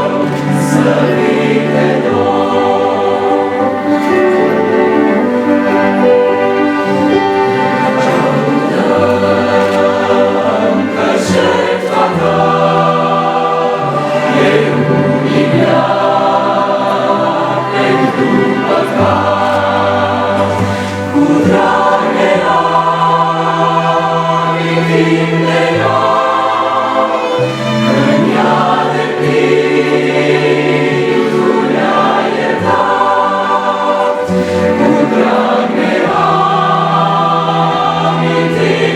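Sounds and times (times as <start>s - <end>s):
choir singing worship song: 0.0s - 38.9s
instrumental accompaniment: 0.0s - 38.9s.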